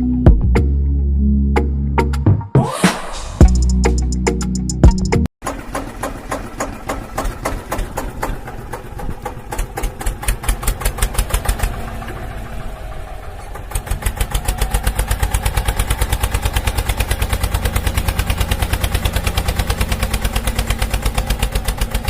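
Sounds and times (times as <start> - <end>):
small engine chugging: 5.4 - 22.0.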